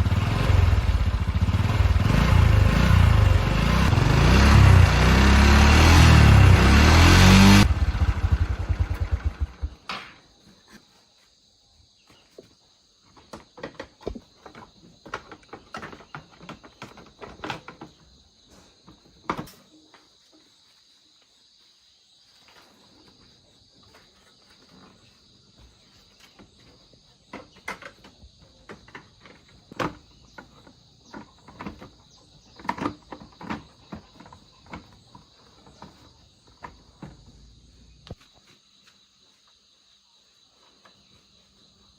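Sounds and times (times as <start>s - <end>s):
motorcycle engine winding down: 0.0s - 9.9s
crickets chirping: 6.8s - 41.9s.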